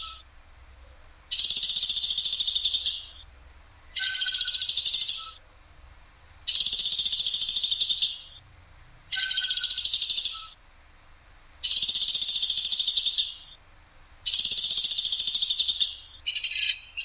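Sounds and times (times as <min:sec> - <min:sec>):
bird high-pitched trills: 0:04.0 - 0:05.3, 0:09.1 - 0:10.5, 0:14.3 - 0:17.0.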